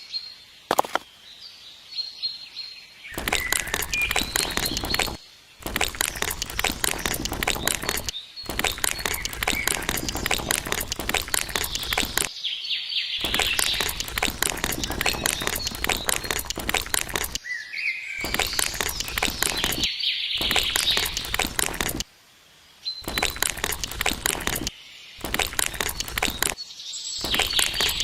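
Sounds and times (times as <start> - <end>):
birds chirping: 0.8 - 22.0, 22.8 - 28.0
dense crackling and crunching: 3.2 - 12.3, 13.2 - 17.4, 18.2 - 22.0, 23.0 - 26.6, 27.2 - 28.0.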